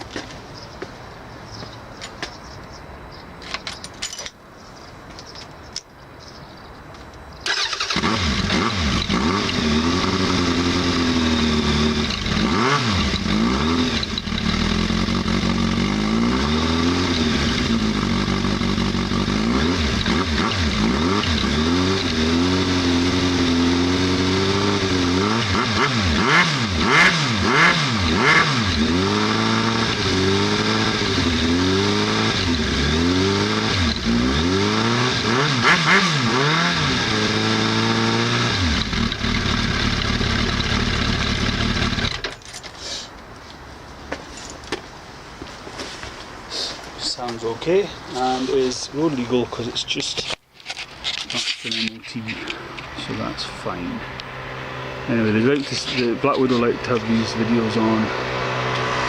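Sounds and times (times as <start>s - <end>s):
motorcycle engine revving: 7.5s - 42.3s, 51.7s - 59.0s.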